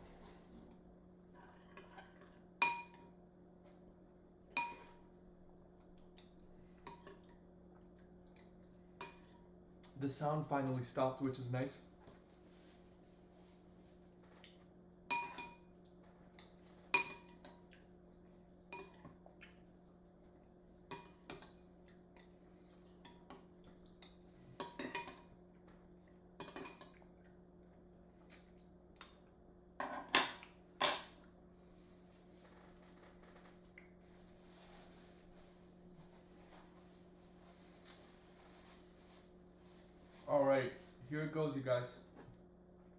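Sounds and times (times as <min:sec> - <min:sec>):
faint steady hum: 0:00.0 - 0:42.9
spoon clinking against a dish: 0:02.6 - 0:03.1, 0:04.5 - 0:05.0, 0:09.0 - 0:09.4, 0:15.1 - 0:15.7, 0:17.0 - 0:17.6.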